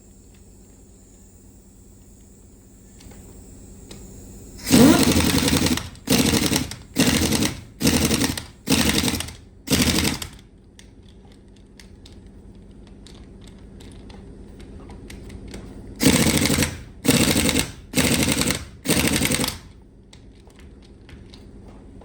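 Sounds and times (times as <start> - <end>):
rattling mechanical bursts: 4.6 - 10.4, 16.0 - 19.8.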